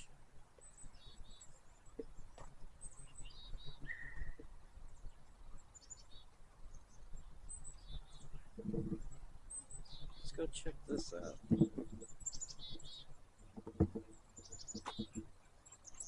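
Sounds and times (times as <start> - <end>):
small birds chirping: 0.0 - 16.0
bird whistle: 3.9 - 4.4.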